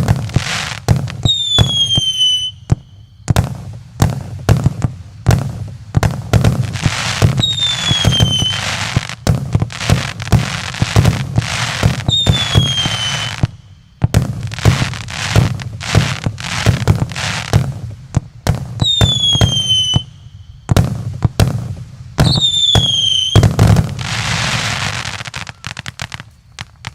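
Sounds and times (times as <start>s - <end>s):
fireworks crackling: 0.0s - 26.9s
fireworks launch and burst bangs: 0.0s - 26.9s
whistling shells: 1.2s - 3.2s, 7.4s - 8.7s, 12.0s - 13.9s, 18.8s - 20.7s, 22.2s - 23.6s.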